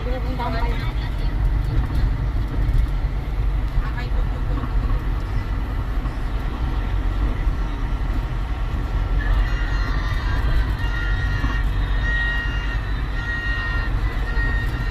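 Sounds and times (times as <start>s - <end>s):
vehicle rumble from inside cabin: 0.0s - 14.9s.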